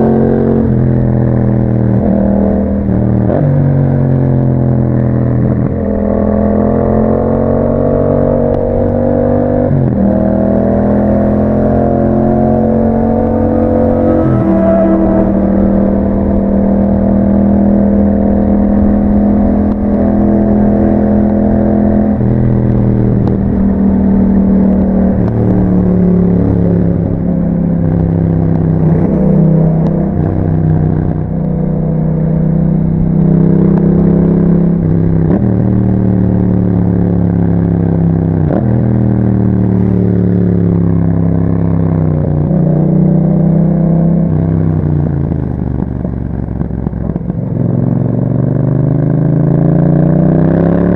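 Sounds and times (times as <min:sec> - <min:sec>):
motorcycle engine through gears: 0:00.0 - 0:50.9.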